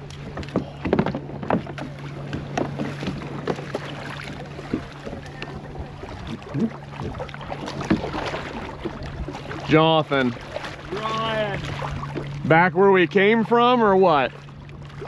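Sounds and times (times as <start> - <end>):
paddle strokes splashing: 0.0 - 15.0
knocks against kayak hull: 0.3 - 5.6.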